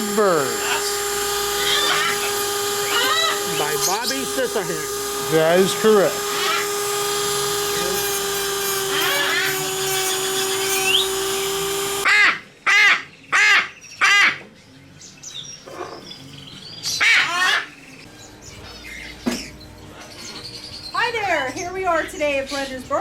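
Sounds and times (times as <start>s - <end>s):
drill-like mechanical whine: 0.0s - 12.1s
parrot squawking: 0.4s - 4.5s, 6.2s - 6.7s, 12.0s - 14.4s, 16.9s - 17.8s.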